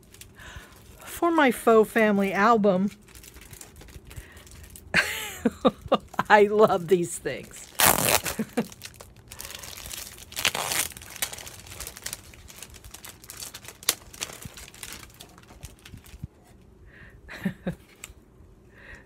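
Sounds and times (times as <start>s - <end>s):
packaging crinkling and tearing: 2.8s - 4.9s, 7.4s - 16.3s.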